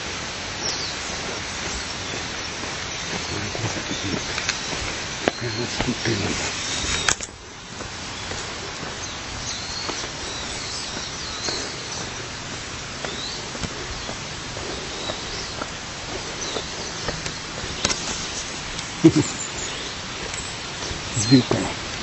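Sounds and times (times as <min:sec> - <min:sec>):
flowing water rushing: 0:00.0 - 0:22.0
small birds chirping: 0:00.0 - 0:22.0.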